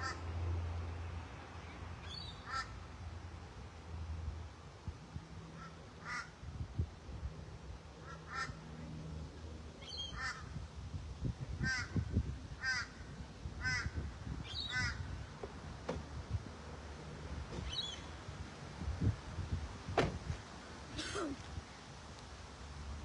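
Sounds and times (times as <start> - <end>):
bird harsh call: 2.0 - 2.8, 9.8 - 10.5, 13.6 - 15.0.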